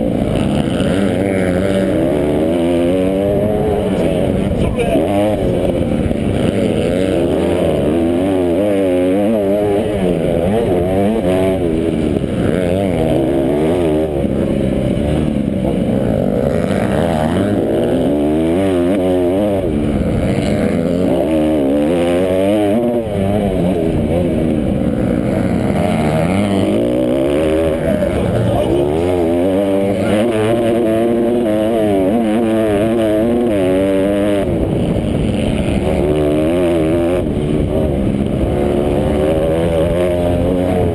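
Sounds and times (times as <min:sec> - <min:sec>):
motocross bike engines revving: 0:00.0 - 0:40.9.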